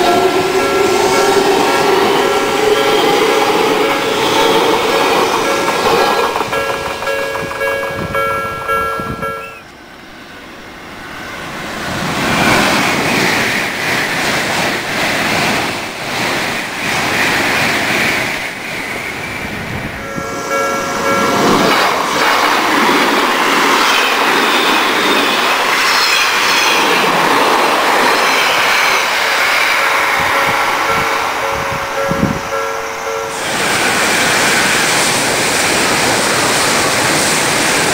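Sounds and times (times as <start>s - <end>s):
level crossing warning bell: 0.0s - 9.7s, 19.6s - 22.0s, 29.7s - 33.6s
train wheel and rail noise: 0.0s - 37.9s.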